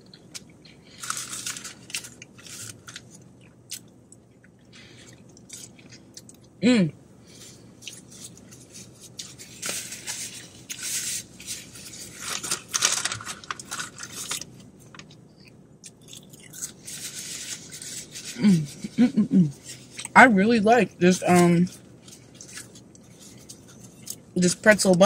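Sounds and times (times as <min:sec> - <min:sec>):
quiet chewing: 0:00.0 - 0:06.6, 0:07.3 - 0:12.1, 0:21.7 - 0:24.4
paper napkin rustling: 0:00.9 - 0:03.2, 0:08.0 - 0:15.1, 0:21.3 - 0:24.2.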